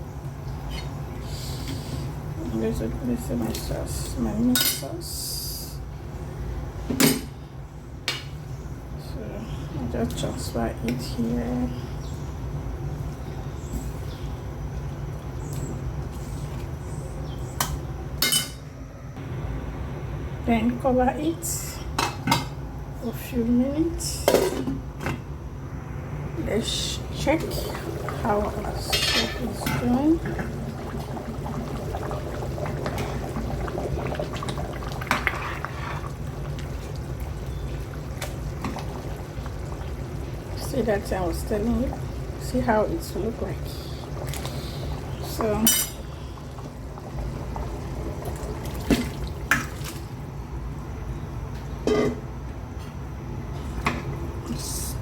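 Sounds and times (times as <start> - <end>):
utensils clinking against a pot: 4.5 - 4.9, 18.2 - 18.6, 28.8 - 30.4, 45.4 - 46.1
soup simmering and bubbling: 27.0 - 50.8, 53.5 - 54.5.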